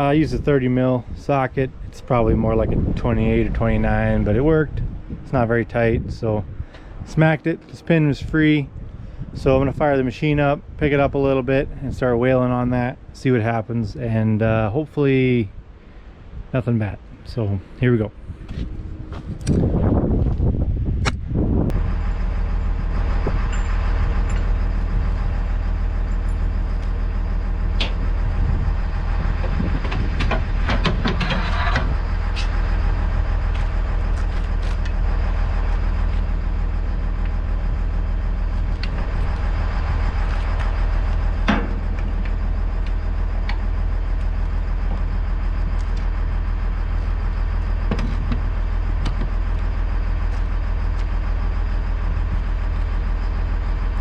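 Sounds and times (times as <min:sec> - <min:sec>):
excavator diesel engine running: 0:17.4 - 0:54.0
sharp metal knocks and clanks: 0:29.8 - 0:32.5, 0:41.4 - 0:42.4.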